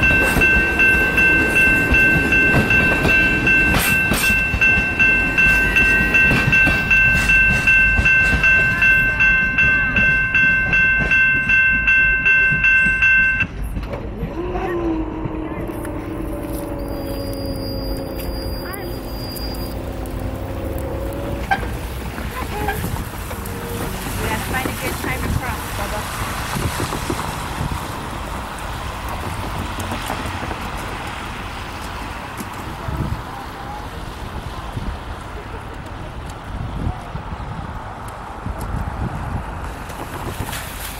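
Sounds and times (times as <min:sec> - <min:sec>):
railroad bell ringing: 0:00.0 - 0:13.8, 0:15.7 - 0:21.5
train rumble: 0:00.0 - 0:40.9.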